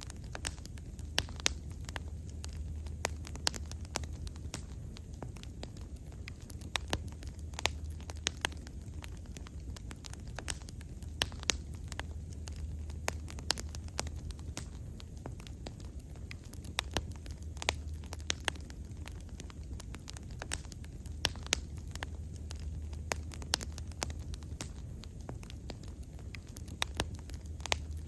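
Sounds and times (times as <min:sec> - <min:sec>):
low rumble of flames: 0:00.0 - 0:28.0
sharp pops and snaps: 0:00.0 - 0:28.0
wood fire crackling: 0:00.0 - 0:28.0.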